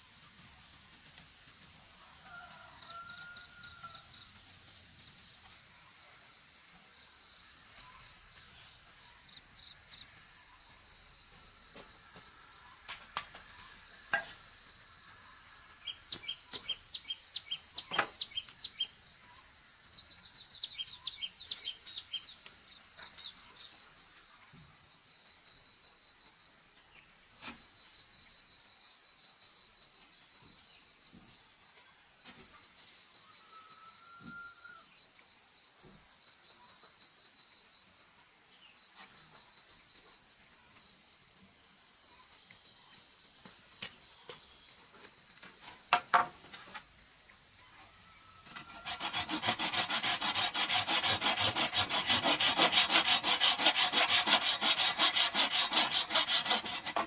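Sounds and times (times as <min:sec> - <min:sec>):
insects droning: 0:00.0 - 0:57.0
pulsing insect trill: 0:46.1 - 0:57.0.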